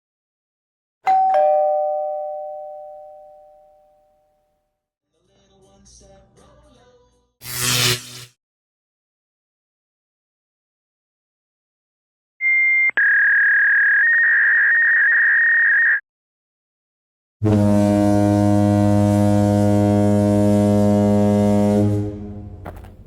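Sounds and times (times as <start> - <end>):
low buzzing horn tone: 17.4 - 23.0.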